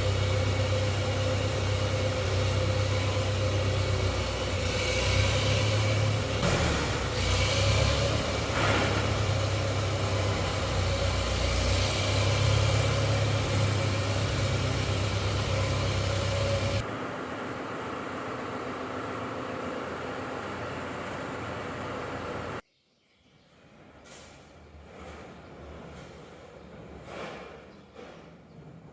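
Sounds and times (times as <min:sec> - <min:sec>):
vehicle engine running: 0:00.0 - 0:22.6.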